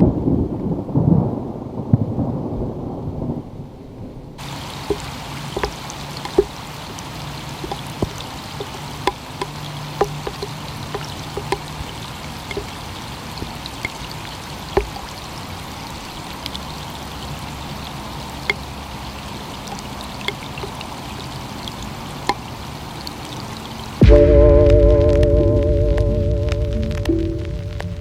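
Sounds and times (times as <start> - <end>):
steady rain falling: 0.0 - 28.0
sharp taps of drops: 4.9 - 7.0, 7.6 - 11.8, 12.5 - 12.8, 14.8 - 15.0.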